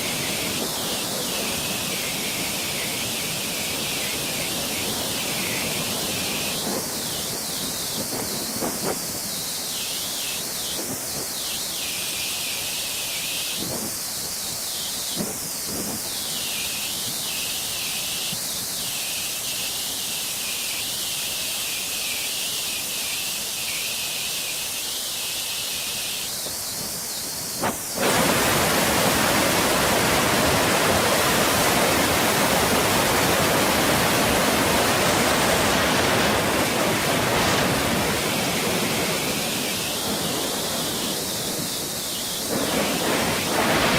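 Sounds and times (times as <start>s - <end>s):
waterfall rushing: 23.0s - 43.9s.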